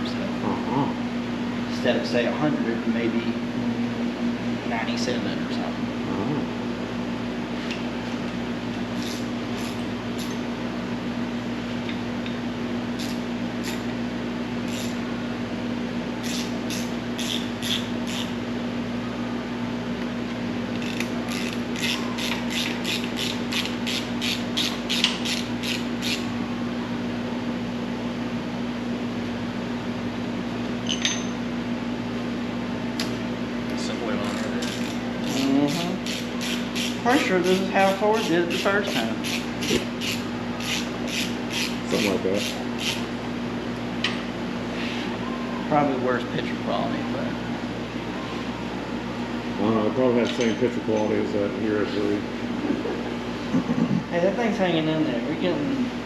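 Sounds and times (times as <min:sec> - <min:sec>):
steady hum: 0:00.0 - 0:56.0
hand ratchet clicking: 0:16.2 - 0:18.3, 0:20.8 - 0:26.3, 0:34.3 - 0:37.6, 0:38.2 - 0:41.8, 0:42.4 - 0:43.0.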